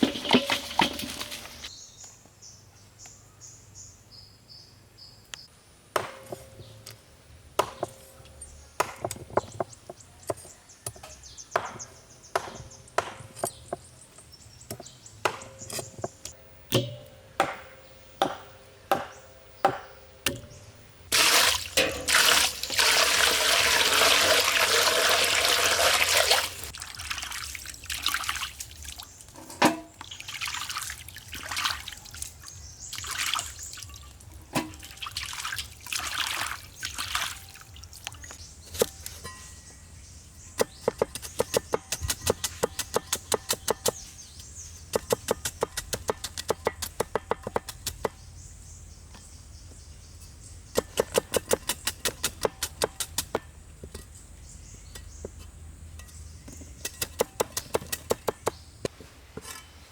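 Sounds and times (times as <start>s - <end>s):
water pouring: 0.0s - 1.7s, 21.1s - 29.1s, 30.0s - 38.3s.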